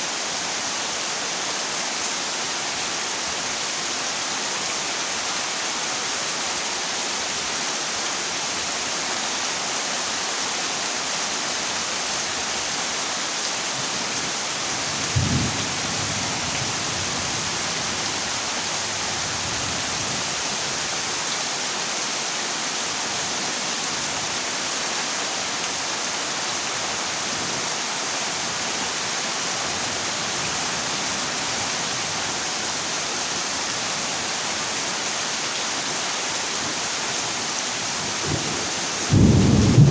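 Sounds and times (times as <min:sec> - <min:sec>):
heavy rain on a metal roof: 0:00.0 - 0:39.9
thunder clap: 0:39.1 - 0:39.9.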